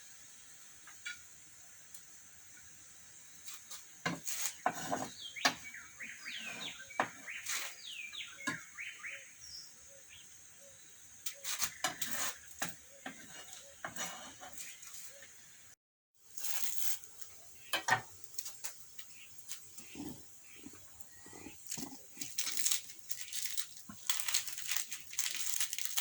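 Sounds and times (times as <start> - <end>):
steady high hiss: 0.0 - 4.6, 14.6 - 26.0
bird chirping: 4.5 - 13.9, 17.1 - 26.0.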